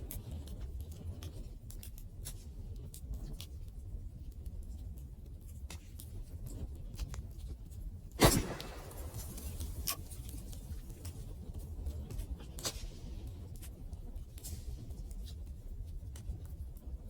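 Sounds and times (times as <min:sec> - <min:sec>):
loud fire pop: 0:08.2 - 0:10.2
fire rumbling: 0:08.2 - 0:10.8
wood fire crackling: 0:08.2 - 0:10.8.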